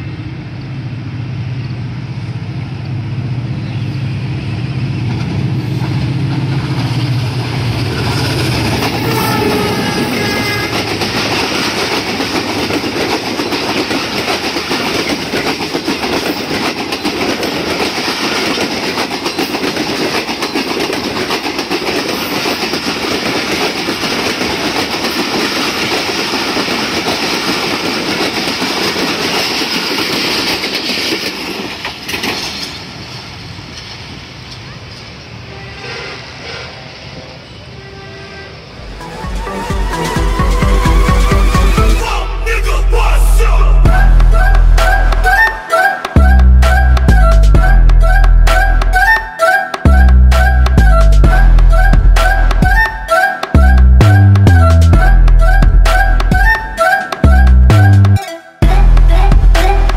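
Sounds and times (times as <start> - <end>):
diesel locomotive running: 0.0 - 59.9
train wheels clattering: 5.0 - 35.1
train horn: 7.9 - 11.7, 35.4 - 36.9, 37.6 - 41.8.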